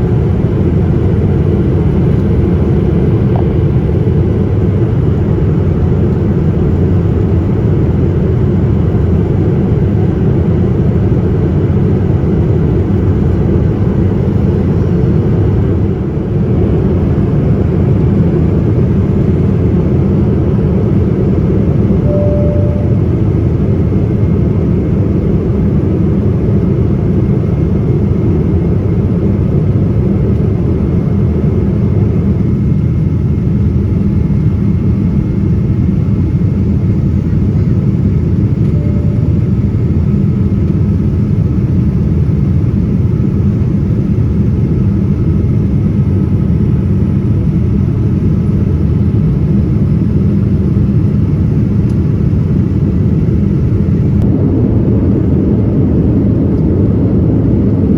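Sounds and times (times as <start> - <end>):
airliner engine rumble: 0.0 - 57.9
faint steady tones: 22.0 - 23.4.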